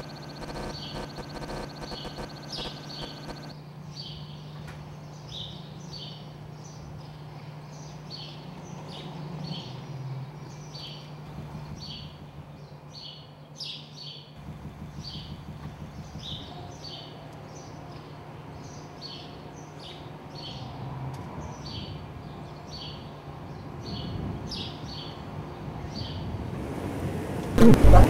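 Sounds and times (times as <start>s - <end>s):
bird chirping: 0.0s - 3.5s
steady low hum: 0.0s - 3.6s, 27.5s - 28.0s.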